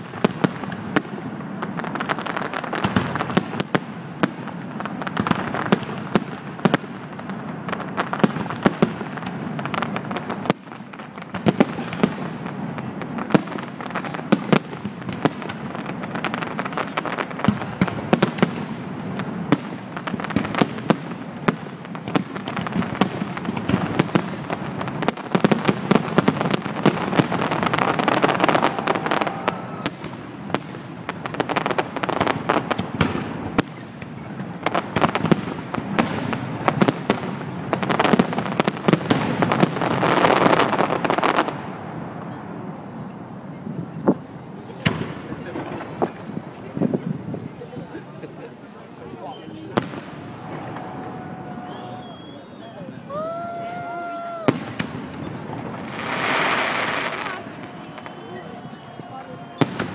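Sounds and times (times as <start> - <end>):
firework crackle: 0.0 - 59.9.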